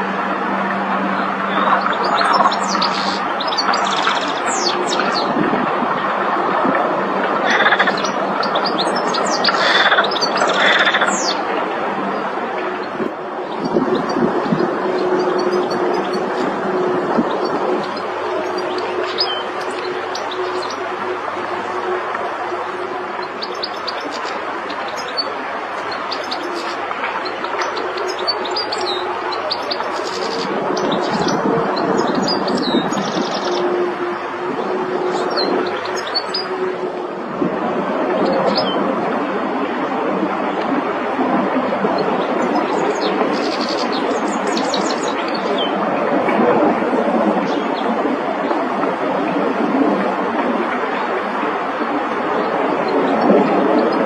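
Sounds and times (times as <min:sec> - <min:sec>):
constant rushing background noise: 0:00.0 - 0:54.0
goldfinch twittering song: 0:01.8 - 0:05.3, 0:13.6 - 0:21.2.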